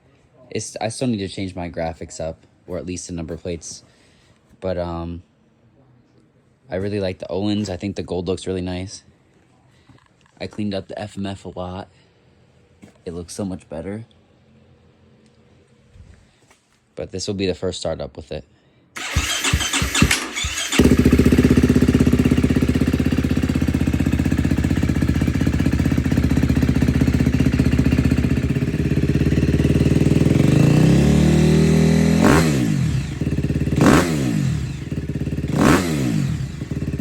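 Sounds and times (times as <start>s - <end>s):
dirt bike engine starting and revving: 19.0s - 37.0s.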